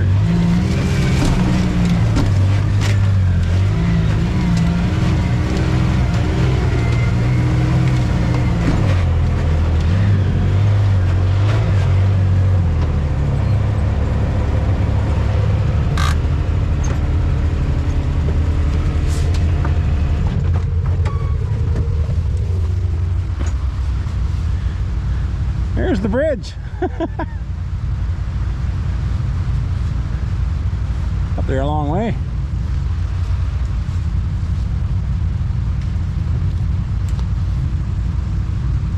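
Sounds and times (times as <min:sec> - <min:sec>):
off-road vehicle engine: 0:00.0 - 0:38.9.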